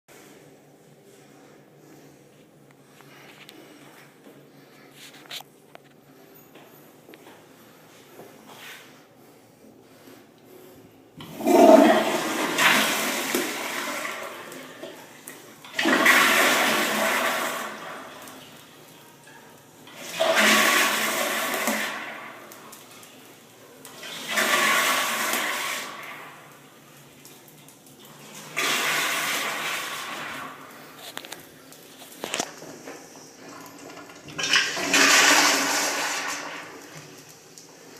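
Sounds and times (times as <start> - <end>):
toilet flushing: 11.2 - 31.1, 31.8 - 37.9.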